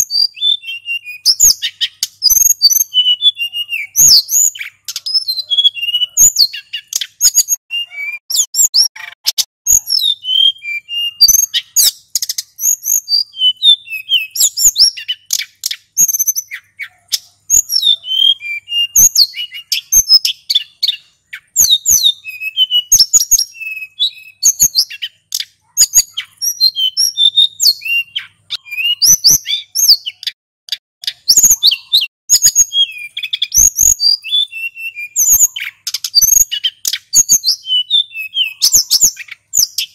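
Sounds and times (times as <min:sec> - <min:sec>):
bird singing fast high chirps: 0:00.0 - 0:39.9.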